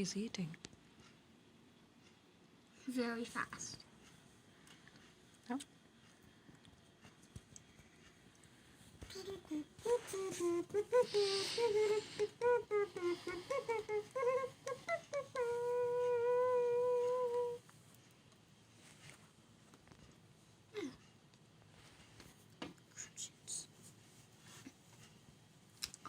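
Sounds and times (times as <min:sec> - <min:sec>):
person humming: 0:09.0 - 0:17.6.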